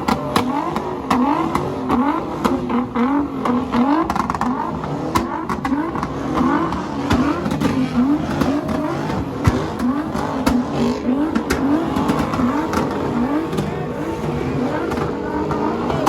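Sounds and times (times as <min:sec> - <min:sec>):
car engine revving hard: 0:00.0 - 0:16.0.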